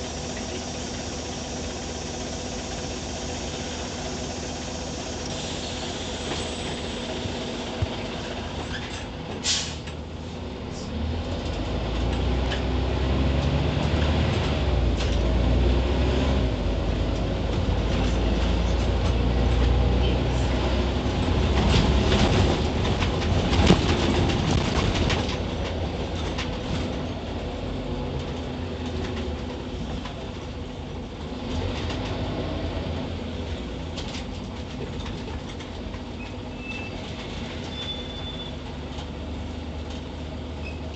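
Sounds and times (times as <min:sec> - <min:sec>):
bus diesel engine pulling: 0:00.0 - 0:40.9
rattles and clicks: 0:21.2 - 0:27.5, 0:28.1 - 0:30.8, 0:33.8 - 0:37.9.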